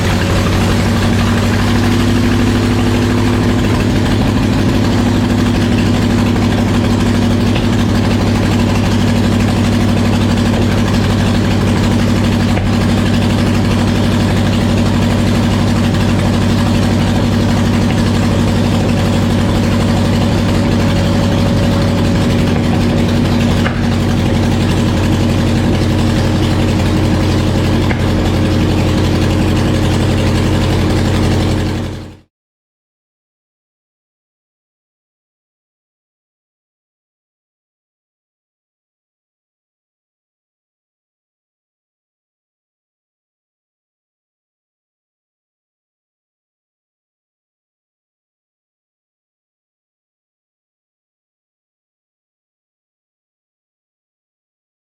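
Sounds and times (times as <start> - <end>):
aircraft piston engine running: 0.0 - 32.2.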